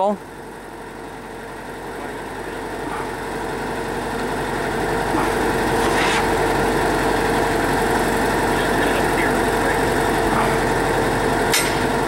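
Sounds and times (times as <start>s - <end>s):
drill rig engine running: 0.0s - 12.0s.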